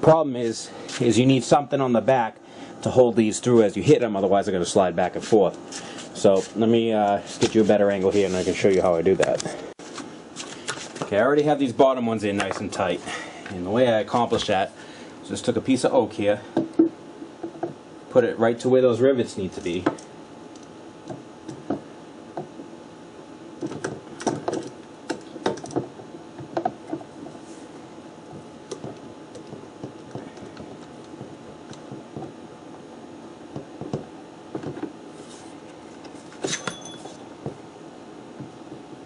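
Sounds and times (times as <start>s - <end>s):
steady low hum: 0.0s - 39.0s
wood clicking and knocking: 23.6s - 27.1s, 28.3s - 32.4s, 33.5s - 34.9s.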